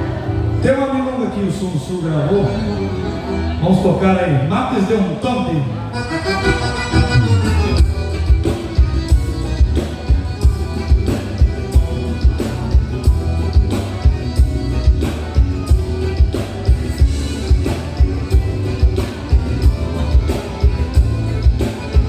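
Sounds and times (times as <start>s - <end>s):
live band playing: 0.0s - 22.0s
low drum beat: 6.9s - 22.0s.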